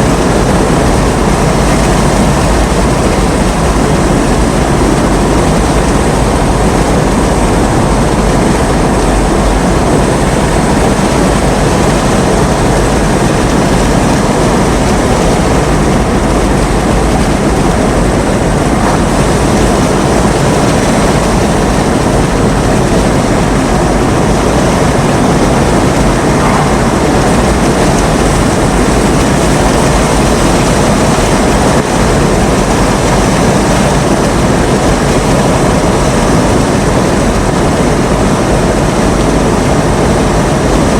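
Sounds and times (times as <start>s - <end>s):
low rumble: 0.0s - 32.7s
heavy rain: 0.0s - 40.9s
strong storm wind: 0.0s - 40.9s.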